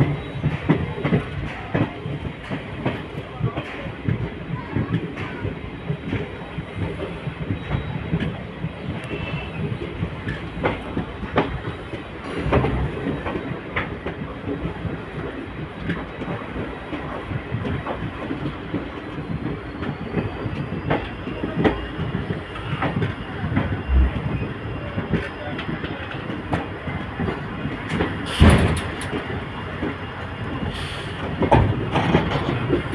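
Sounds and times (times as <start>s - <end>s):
train rumbling along track: 0.0s - 32.9s
wheels clacking over rail joints: 26.3s - 32.9s.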